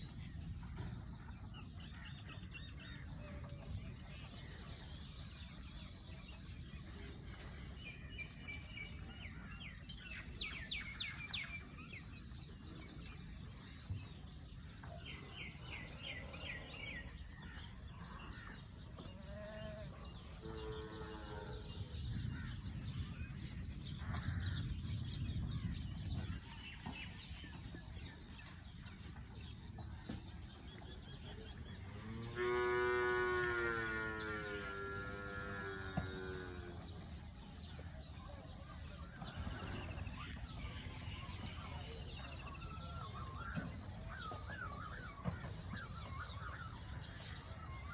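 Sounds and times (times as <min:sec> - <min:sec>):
low animal call: 0:31.9 - 0:37.0.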